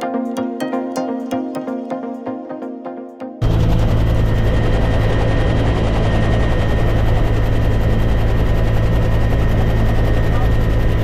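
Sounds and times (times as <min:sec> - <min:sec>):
high whine: 0:00.0 - 0:11.0
helicopter running: 0:03.4 - 0:11.0.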